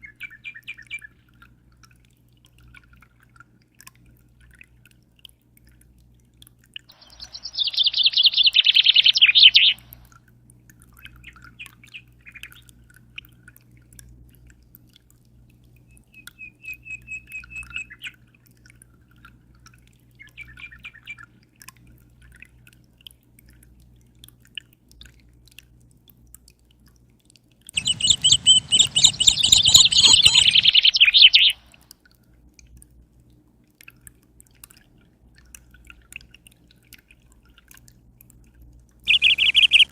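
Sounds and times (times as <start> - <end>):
soft bird chirps: 0.0 - 1.2, 6.9 - 10.0, 15.9 - 18.2, 20.2 - 21.2, 27.8 - 31.8, 39.1 - 39.9
low steady hum: 0.0 - 23.0, 27.8 - 33.3, 37.4 - 39.9
faint dripping water: 0.0 - 39.9
songbird trilling: 6.9 - 10.0, 16.4 - 18.1, 27.8 - 31.7, 39.1 - 39.9.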